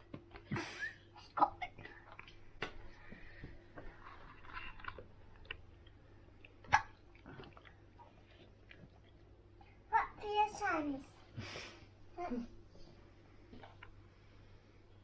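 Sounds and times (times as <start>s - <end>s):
soft chewing of banana: 0.0s - 9.9s, 12.4s - 15.0s.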